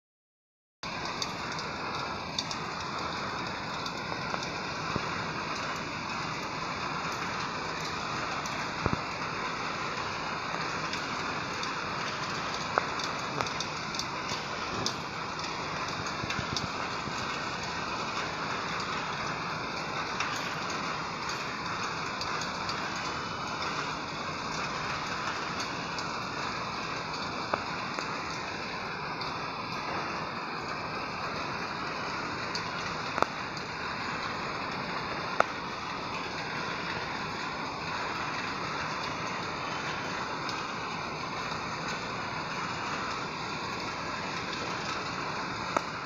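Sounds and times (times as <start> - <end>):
rain hiss: 0.8 - 46.0
raindrops tapping: 0.8 - 46.0.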